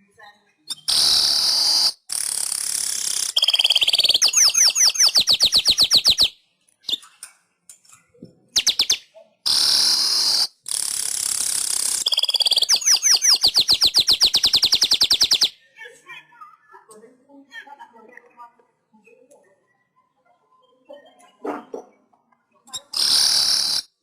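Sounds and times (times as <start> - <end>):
bird wheezy hiss and chirps: 0.8 - 4.3, 9.5 - 15.4, 22.9 - 23.9.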